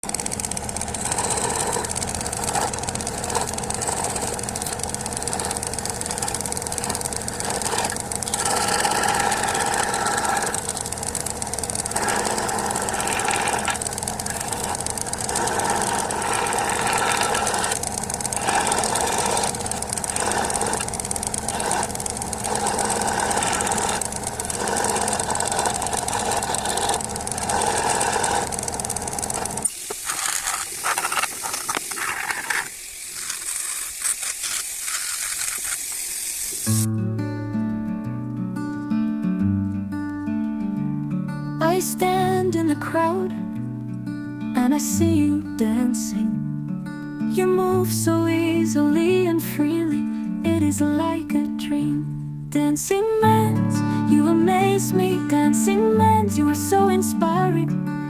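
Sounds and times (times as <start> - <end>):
electric jigsaw cutting wood: 0.0 - 36.9.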